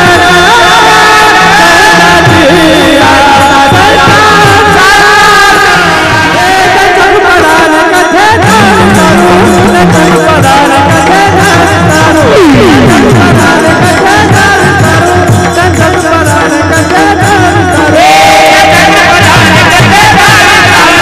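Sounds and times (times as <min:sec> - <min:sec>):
solo voice singing: 0:00.0 - 0:21.0
repeating low accompaniment: 0:12.2 - 0:15.0.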